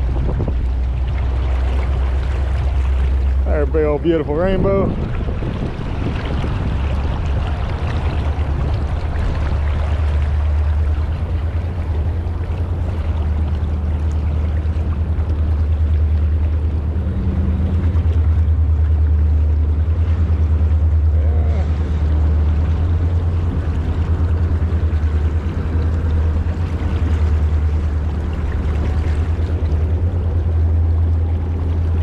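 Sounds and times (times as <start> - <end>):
wind buffeting microphone: 0.0 - 32.0
fast-flowing river rushing: 4.9 - 19.3.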